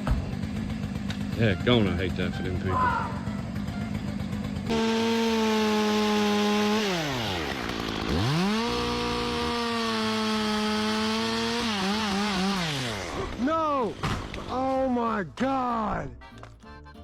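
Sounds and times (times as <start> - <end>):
chainsaw engine revving: 0.3 - 2.8, 3.4 - 14.7.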